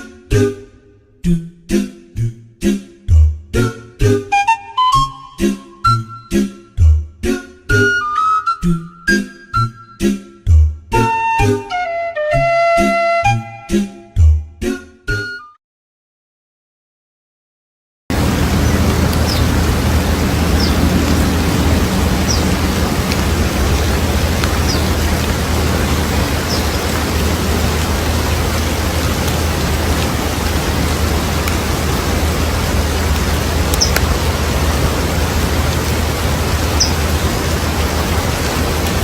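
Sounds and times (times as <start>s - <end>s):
loud rushing noise: 18.1s - 39.0s
high bird chirps: 18.5s - 28.6s, 33.4s - 34.4s, 36.4s - 37.3s.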